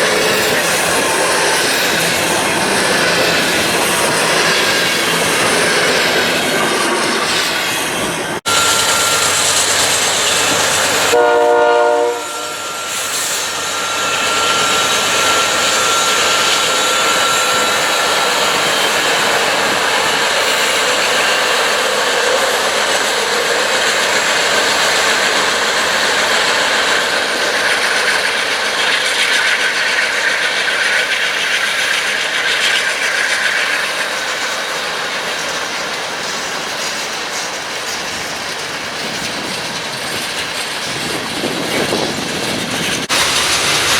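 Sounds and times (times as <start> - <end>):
train wheels clattering on rails: 0.0 - 11.2, 12.5 - 43.9
train horn blast: 11.0 - 15.5.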